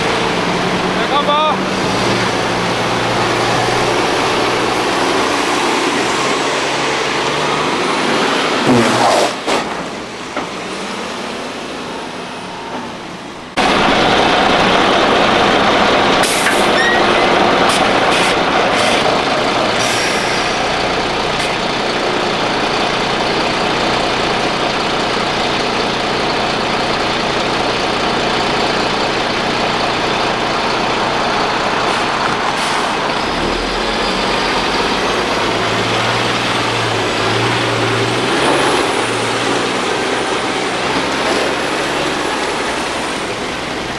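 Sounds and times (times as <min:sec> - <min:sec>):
heavy trucks driving: 0:00.0 - 0:43.9
air brakes hissing: 0:16.2 - 0:21.7, 0:31.9 - 0:33.2.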